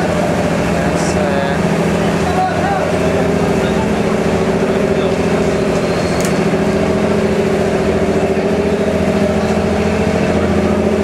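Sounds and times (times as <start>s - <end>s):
boat engine droning: 0.0s - 11.0s
brief click: 6.2s - 6.4s.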